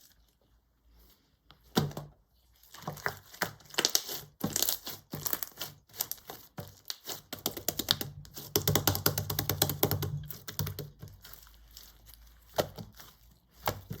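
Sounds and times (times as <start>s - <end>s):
slime squeezed by hand crackling: 2.6s - 8.5s.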